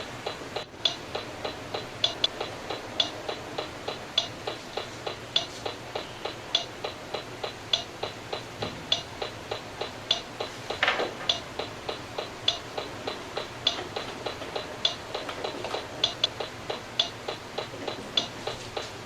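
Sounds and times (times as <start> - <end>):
steady ticking clicks: 0.0 - 19.0.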